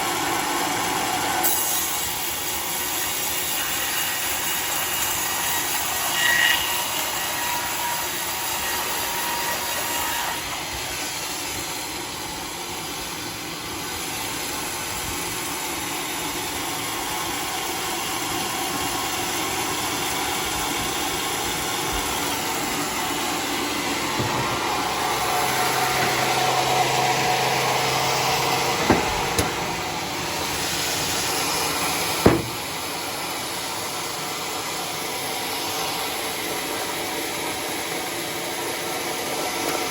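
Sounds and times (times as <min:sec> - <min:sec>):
sawmill sawing a log: 0:00.0 - 0:39.9
sharp knocks: 0:28.8 - 0:29.6, 0:32.2 - 0:32.7.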